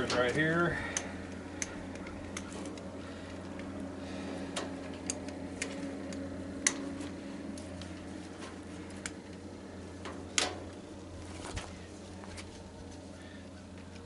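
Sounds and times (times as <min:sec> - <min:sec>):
steady low hum: 0:00.0 - 0:14.0
hand tools clicking on metal: 0:00.8 - 0:02.9, 0:04.5 - 0:06.9.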